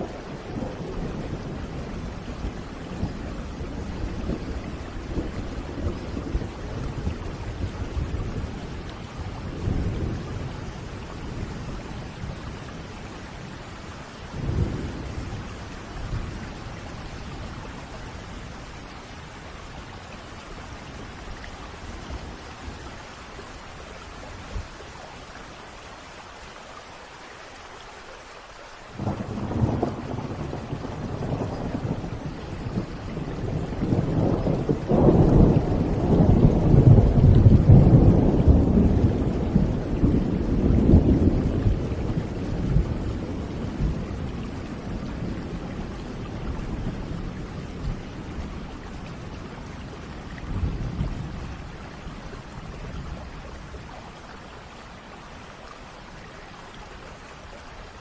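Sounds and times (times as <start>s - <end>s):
steady rain: 0.0s - 58.0s
thunderclap rumbling: 14.3s - 18.8s, 29.0s - 54.0s.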